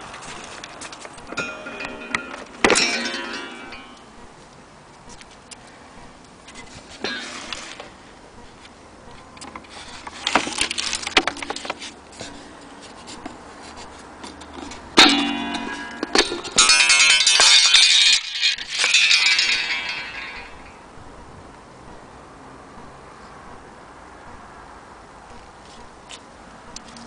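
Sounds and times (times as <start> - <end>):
clock metallic strikes ringing: 1.3 - 4.1.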